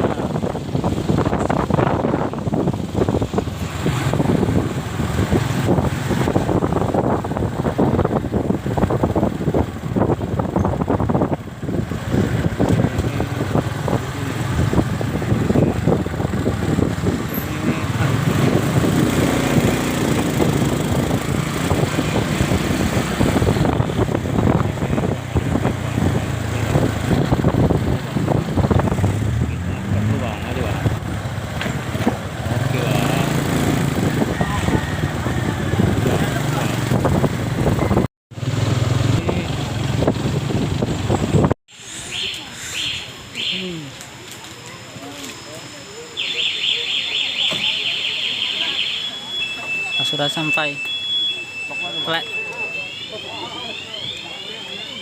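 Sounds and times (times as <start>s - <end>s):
wind buffeting microphone: 0.0s - 30.0s
motorcycle engine running: 0.0s - 41.5s.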